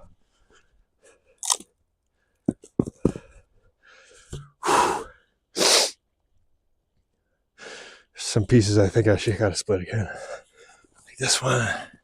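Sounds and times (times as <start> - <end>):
log crunching apart: 1.4 - 1.7.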